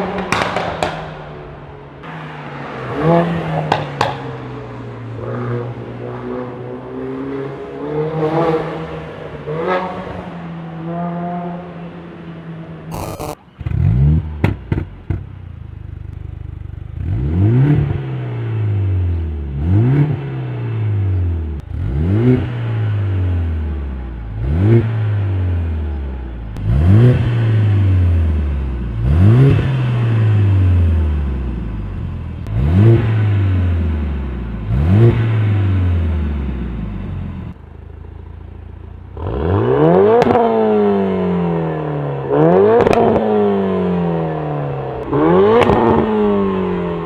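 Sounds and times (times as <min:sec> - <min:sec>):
exhaust cracks: 0:12.9 - 0:16.2
car engine revving: 0:17.0 - 0:25.9, 0:26.6 - 0:37.6, 0:39.2 - 0:47.0.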